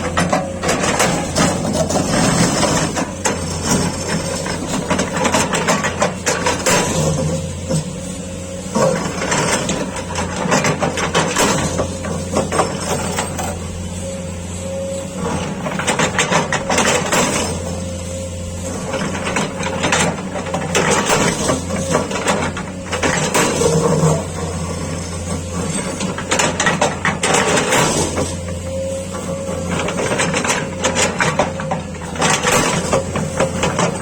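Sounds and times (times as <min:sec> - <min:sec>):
metal clanking and scraping: 0:00.0 - 0:14.0, 0:15.1 - 0:17.9, 0:18.6 - 0:34.0
diesel engine running: 0:00.0 - 0:34.0.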